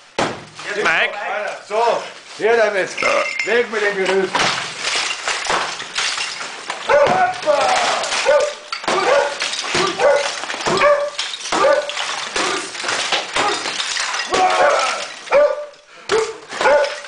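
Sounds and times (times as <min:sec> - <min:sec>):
dog barking: 0:06.9 - 0:07.2, 0:08.2 - 0:12.0, 0:14.6 - 0:17.0.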